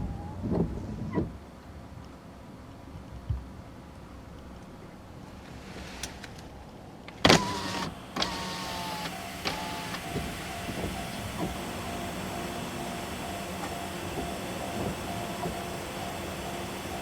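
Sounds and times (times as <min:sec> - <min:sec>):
electric train hum: 0:05.8 - 0:17.0.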